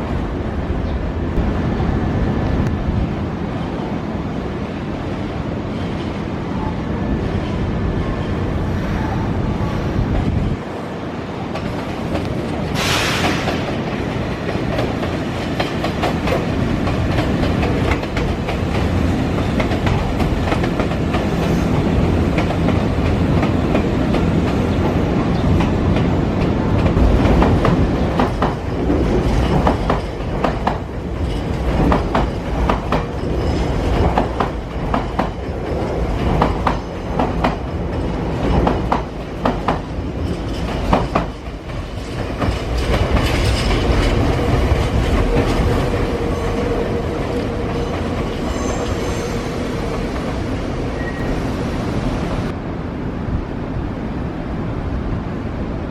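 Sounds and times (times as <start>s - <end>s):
electric train rumbling: 0.0s - 55.9s
brief hiss: 12.8s - 13.6s.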